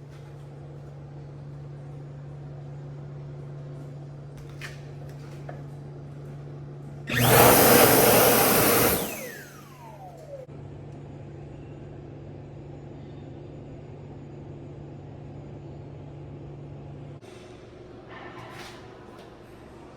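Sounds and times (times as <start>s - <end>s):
electric hand dryer blasting: 7.1s - 10.5s.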